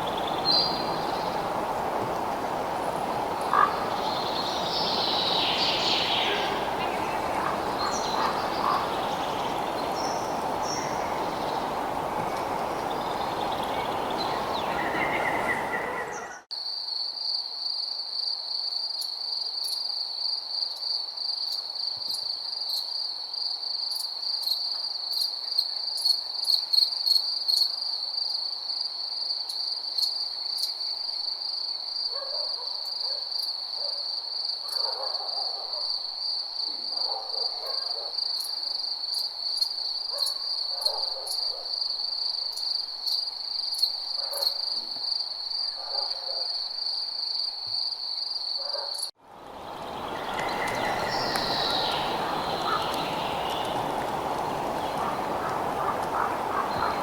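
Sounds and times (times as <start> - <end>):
crickets trilling: 0.0 - 16.2, 46.4 - 57.0.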